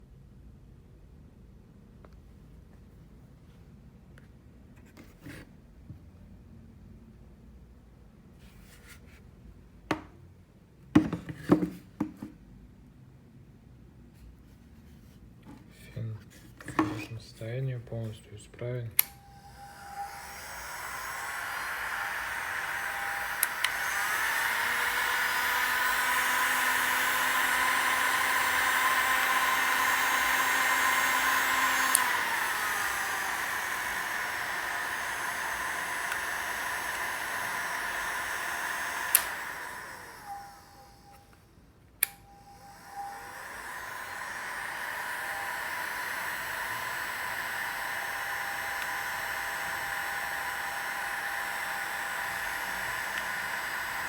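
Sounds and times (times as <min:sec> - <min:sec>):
hair dryer running: 0:16.7 - 0:17.2, 0:19.0 - 0:41.4, 0:42.0 - 0:54.0
hair dryer switch clicks: 0:19.0 - 0:41.4, 0:42.0 - 0:54.0.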